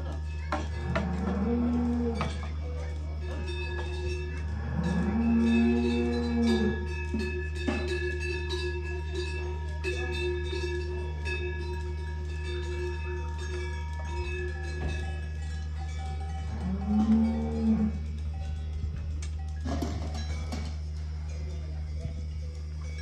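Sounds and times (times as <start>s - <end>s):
cowbells clanking: 0.0s - 23.0s
cow mooing: 0.8s - 2.3s, 4.5s - 6.9s, 16.5s - 18.0s.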